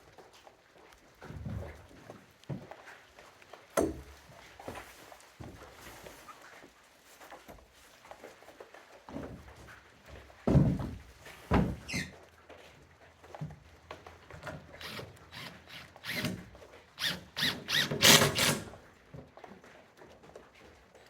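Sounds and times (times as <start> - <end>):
wood sheets scraping and squeaking: 11.6 - 12.2.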